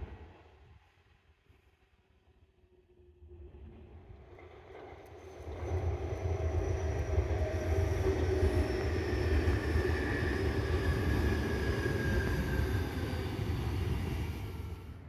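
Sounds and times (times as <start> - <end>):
faint high whine sinking in pitch: 3.1 - 15.0
train wheels rumbling on rails: 3.8 - 15.0.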